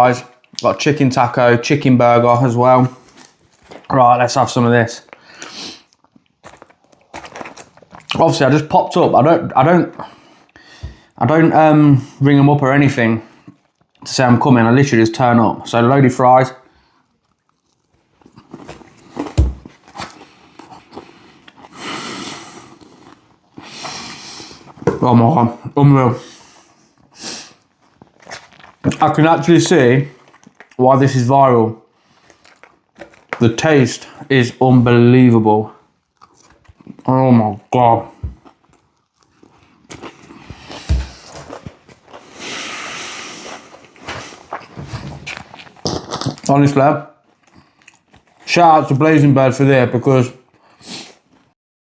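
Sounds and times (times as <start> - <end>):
person chewing: 5.0 - 8.2, 13.4 - 14.0, 16.8 - 24.9, 26.4 - 29.0, 30.1 - 30.8, 32.0 - 33.4, 36.0 - 37.1, 38.1 - 46.5, 47.2 - 48.5.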